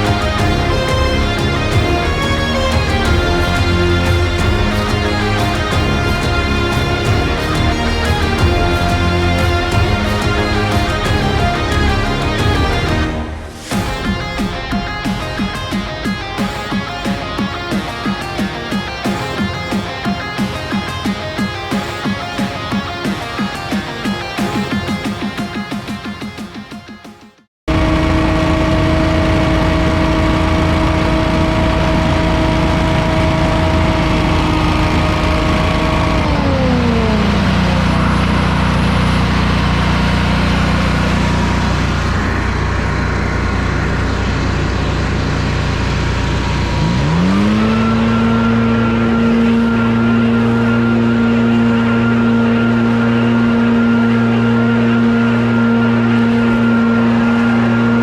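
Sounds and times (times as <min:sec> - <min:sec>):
small gasoline engine revving and idling: 0:27.8 - 0:58.0.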